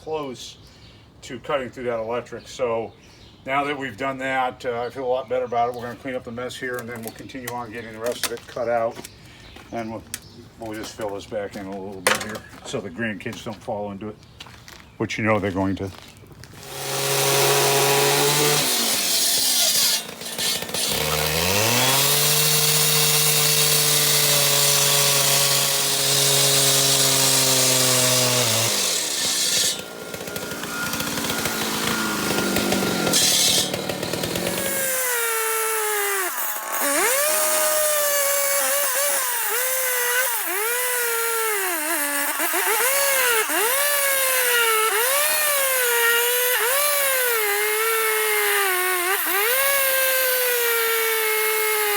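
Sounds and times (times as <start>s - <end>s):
concrete saw cutting: 16.6s - 51.9s.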